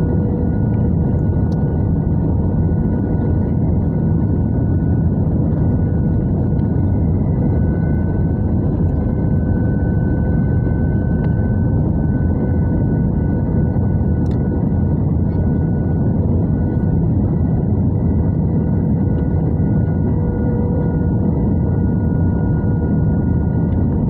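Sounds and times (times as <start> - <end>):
airflow and jet engine drone: 0.0 - 24.0
faint whining tones: 0.0 - 24.0.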